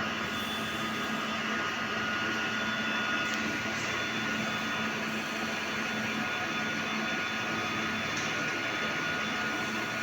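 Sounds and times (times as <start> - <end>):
thin high whine: 0.0 - 1.4
cooling fans whirring: 0.0 - 10.0.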